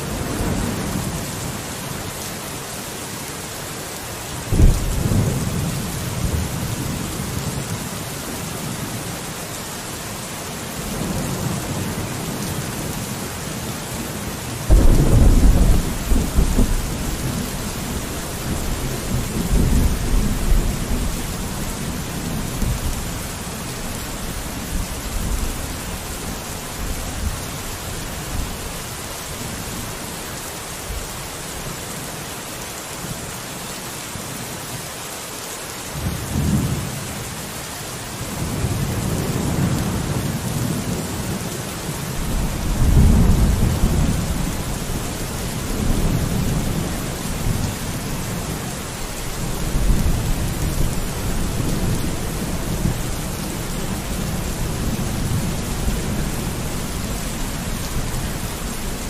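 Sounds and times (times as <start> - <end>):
steady rain hissing: 0.0 - 59.0
rolling thunder: 4.5 - 7.1, 14.7 - 23.1, 42.2 - 47.7.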